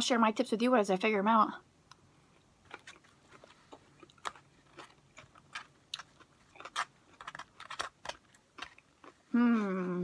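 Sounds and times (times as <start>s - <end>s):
person chewing crunchy food: 1.9s - 9.4s.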